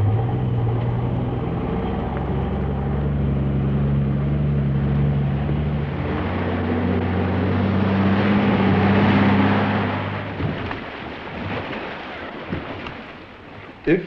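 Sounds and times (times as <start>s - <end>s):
vehicle engine running: 0.0s - 10.8s
road and wind noise: 0.0s - 14.0s.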